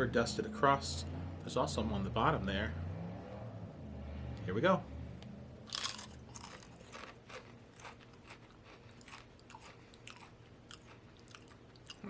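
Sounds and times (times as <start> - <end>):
potato crisp crunching: 5.7 - 12.0.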